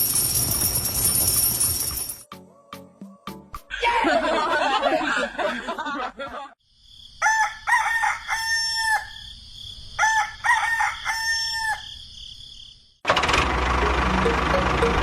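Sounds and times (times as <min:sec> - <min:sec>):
rooster crowing: 0:07.2 - 0:09.3, 0:10.0 - 0:12.0.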